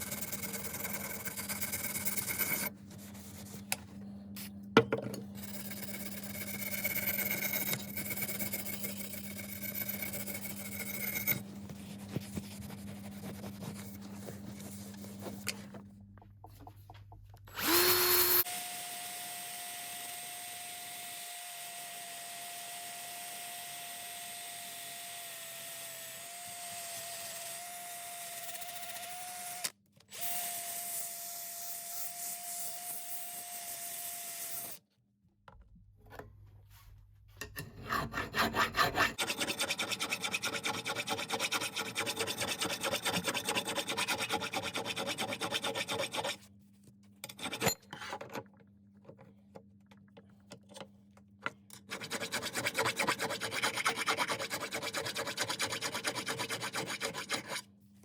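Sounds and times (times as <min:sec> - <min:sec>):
power tool whining: 0:17.5 - 0:30.9
hand rasp scraping wood: 0:37.6 - 0:46.4, 0:51.9 - 0:57.6.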